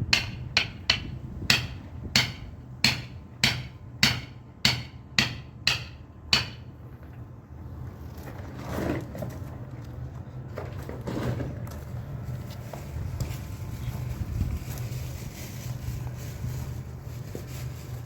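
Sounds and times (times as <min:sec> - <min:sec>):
mallet striking caulking iron: 0:00.0 - 0:06.7.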